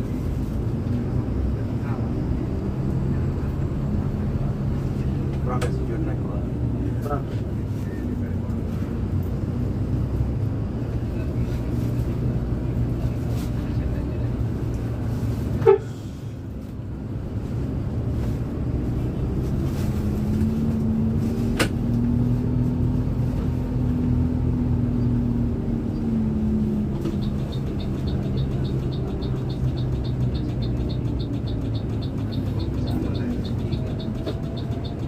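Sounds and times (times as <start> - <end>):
bus engine running: 0.0 - 35.0
fast regular ticking: 27.2 - 35.0.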